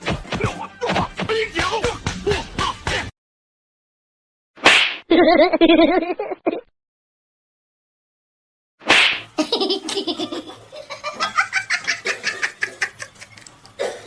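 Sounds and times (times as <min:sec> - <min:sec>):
high-pitched laughter: 0:05.1 - 0:06.7, 0:09.4 - 0:13.5.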